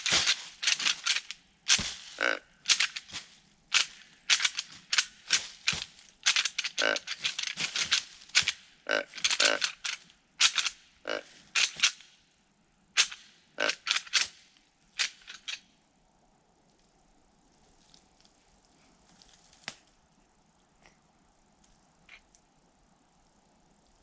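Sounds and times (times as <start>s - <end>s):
rattling bag clattering clicks: 0.0s - 12.0s, 13.0s - 14.4s, 15.0s - 15.6s.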